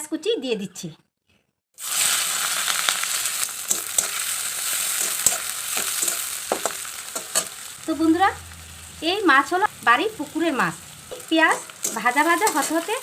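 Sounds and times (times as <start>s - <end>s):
onion sizzling in hot oil: 1.8s - 13.0s.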